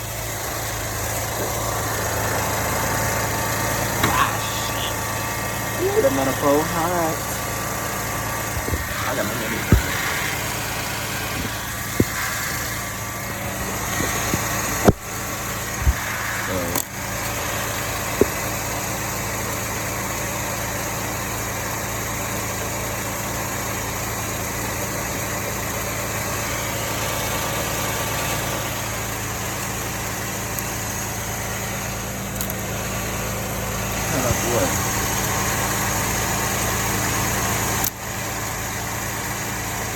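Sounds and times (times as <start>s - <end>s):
car engine idling: 0.0s - 39.9s
sharp clicks and knocks: 11.3s - 12.8s, 13.4s - 15.1s.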